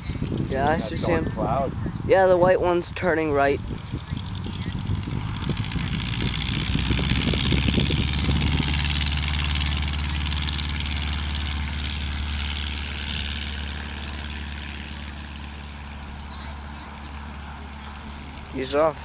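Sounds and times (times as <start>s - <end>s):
propeller aircraft engine droning: 0.0s - 19.0s
propeller hiss: 0.0s - 19.0s
uneven low thumps: 3.6s - 9.2s.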